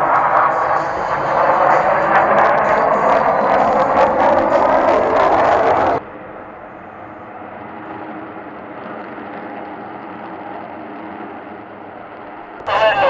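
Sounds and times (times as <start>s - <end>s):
jet roar: 0.0s - 13.0s.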